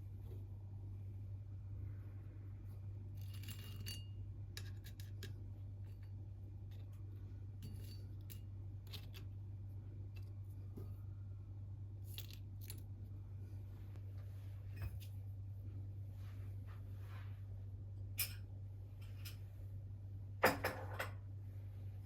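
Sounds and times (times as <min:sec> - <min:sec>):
steady low hum: 0:00.0 - 0:22.0
objects handled with clicks and taps: 0:03.3 - 0:09.4.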